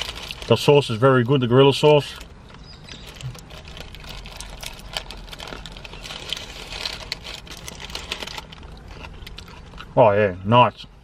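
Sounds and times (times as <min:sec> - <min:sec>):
low steady hum: 0:00.0 - 0:11.0
person chewing a burger: 0:02.2 - 0:10.0.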